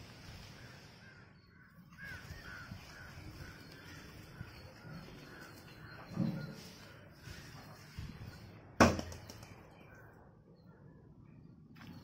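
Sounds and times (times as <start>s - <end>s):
bird calling: 0.4s - 8.5s.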